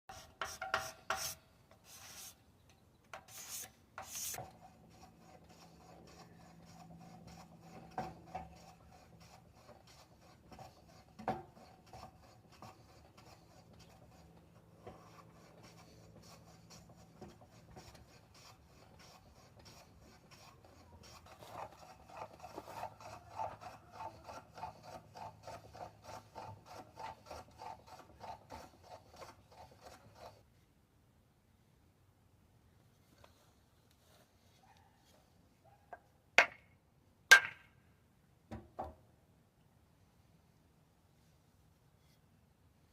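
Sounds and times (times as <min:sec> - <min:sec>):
sanding wood by hand: 0:00.1 - 0:02.4, 0:03.2 - 0:30.4.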